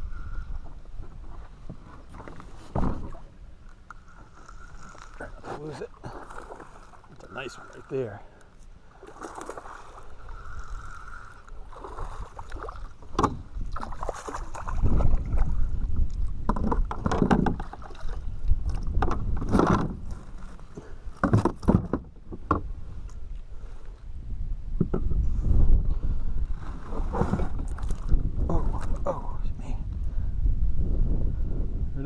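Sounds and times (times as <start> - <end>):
wind on microphone: 0.0 - 3.4, 9.6 - 32.0
water splashing: 8.9 - 19.0.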